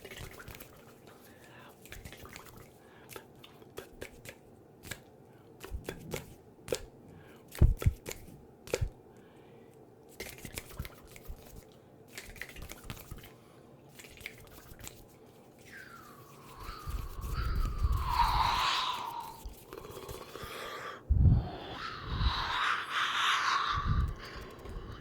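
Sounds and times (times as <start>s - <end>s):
brushing swishes on microphone: 14.4s - 20.0s.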